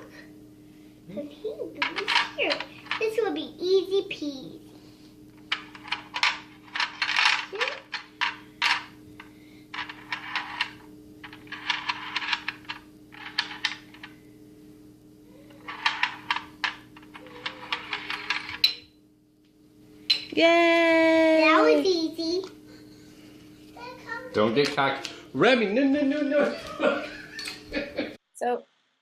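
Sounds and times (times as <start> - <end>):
steady low hum: 0.0 - 28.2
plastic pieces clicking and rattling: 5.5 - 8.8.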